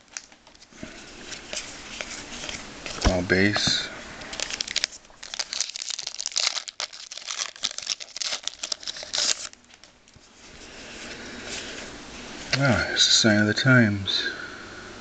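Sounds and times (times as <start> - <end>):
foil wrapper crinkling and tearing: 4.2 - 10.0.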